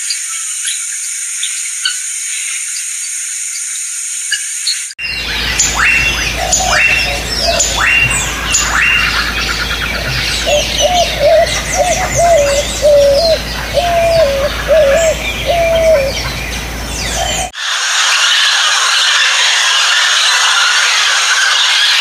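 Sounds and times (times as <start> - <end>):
birds high chirps: 4.3 - 17.5
birds sharp falling calls: 5.0 - 17.5
bird short low notes: 5.1 - 17.5.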